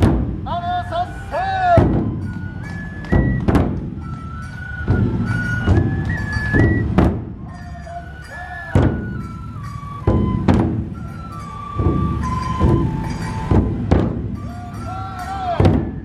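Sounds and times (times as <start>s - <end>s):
large drums struck heavily: 0.0s - 0.9s, 1.8s - 4.2s, 4.9s - 7.6s, 8.7s - 9.3s, 10.0s - 16.0s
high bamboo flute melody: 0.0s - 16.0s.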